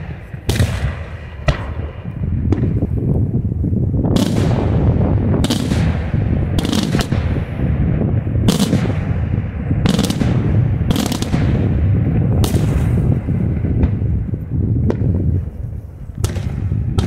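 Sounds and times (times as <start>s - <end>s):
rumble of detonations: 0.0s - 17.0s.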